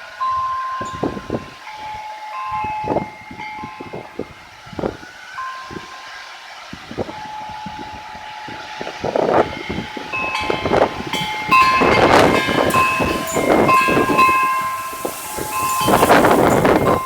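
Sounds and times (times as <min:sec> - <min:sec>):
wind buffeting microphone: 0:06.8 - 0:17.0
high ringing tones: 0:09.5 - 0:17.0.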